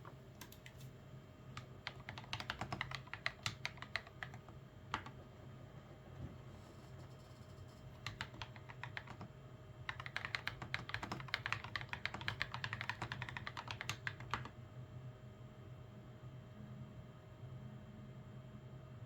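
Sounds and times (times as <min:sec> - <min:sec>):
mechanical keyboard typing: 0:01.6 - 0:05.2, 0:08.0 - 0:09.3, 0:09.9 - 0:14.5.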